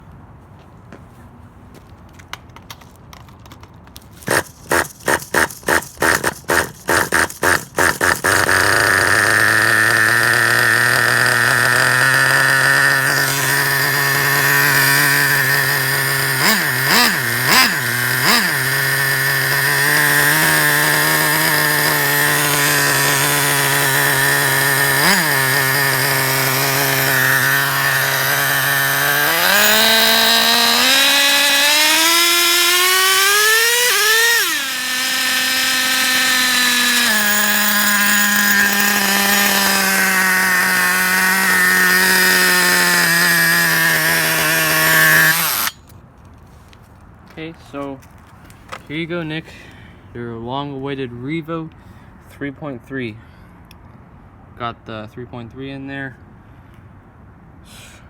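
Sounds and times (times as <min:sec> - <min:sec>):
small nitro engine cranking and idling: 0:03.4 - 0:46.0
engine throttle blips: 0:04.3 - 0:45.8.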